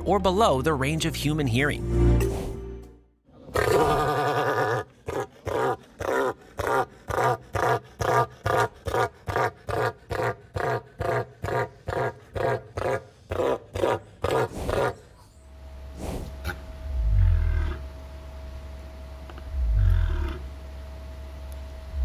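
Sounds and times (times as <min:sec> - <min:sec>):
bird deep rumbling call: 0:16.4 - 0:17.8, 0:19.6 - 0:20.5.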